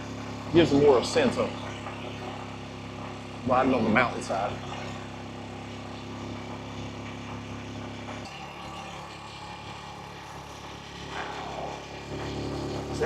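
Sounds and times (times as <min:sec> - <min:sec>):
small motorbike engine running: 0:00.0 - 0:13.0.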